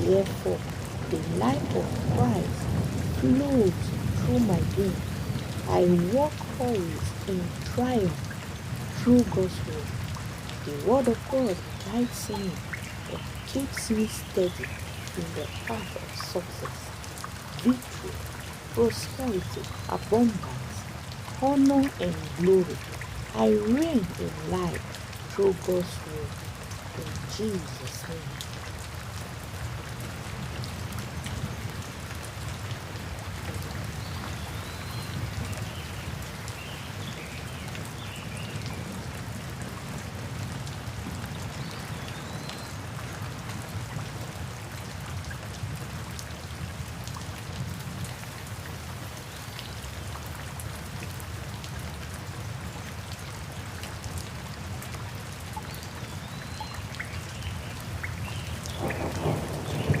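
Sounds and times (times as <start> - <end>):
rain pattering: 0.0 - 60.0
rumble of thunder: 58.8 - 60.0.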